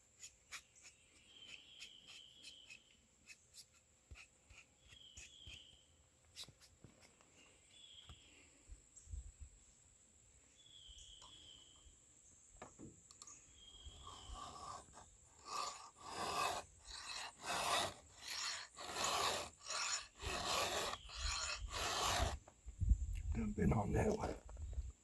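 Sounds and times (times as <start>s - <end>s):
file rasping on chainsaw chain: 14.0s - 22.4s.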